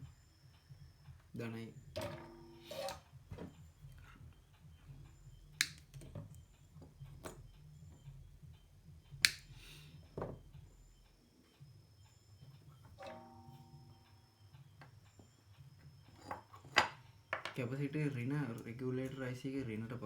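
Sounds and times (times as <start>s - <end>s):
clicks and taps handling tools: 14.8s - 17.6s.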